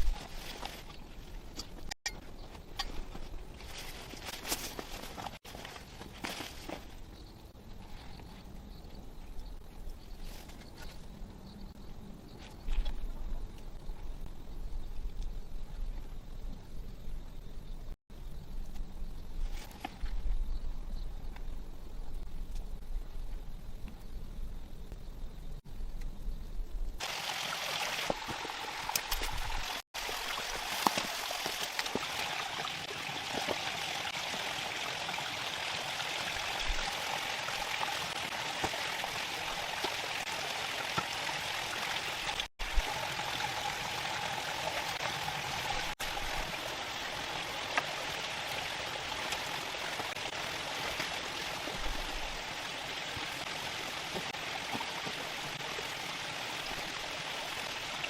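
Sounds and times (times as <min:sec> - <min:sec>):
running water rushing: 0:27.0 - 0:58.0.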